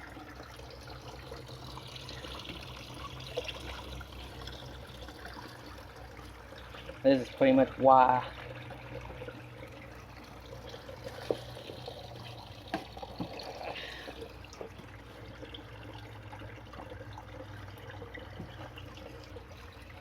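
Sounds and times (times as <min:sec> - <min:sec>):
trickle of running water: 0:00.0 - 0:20.0
plastic pipe clicks and knocks: 0:12.6 - 0:13.5.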